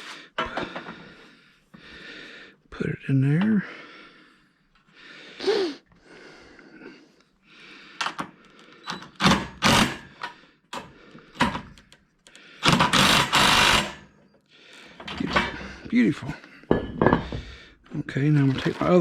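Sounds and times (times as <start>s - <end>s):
knocks and clunks of parts: 0.4s - 1.2s, 8.0s - 12.0s, 12.6s - 14.0s, 15.0s - 15.8s, 16.7s - 17.6s.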